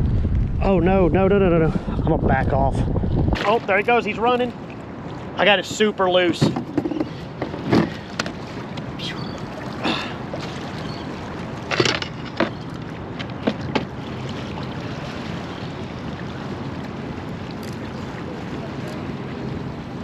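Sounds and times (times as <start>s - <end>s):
water around kayak: 0.0s - 20.0s
wind: 0.0s - 20.0s
knocks and splashes: 3.2s - 3.8s, 6.2s - 15.5s.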